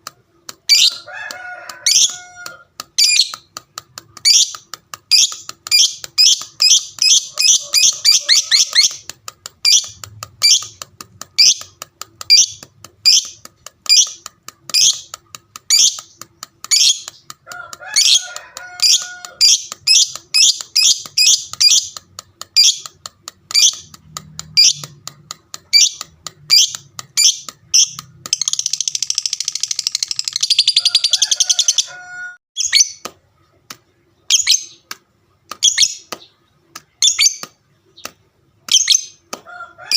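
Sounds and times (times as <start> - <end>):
lovebird chattering song: 0.6 - 1.1, 1.8 - 2.4, 3.0 - 3.6, 4.2 - 22.0, 22.6 - 31.9, 34.2 - 34.9, 37.0 - 38.1, 38.7 - 39.2.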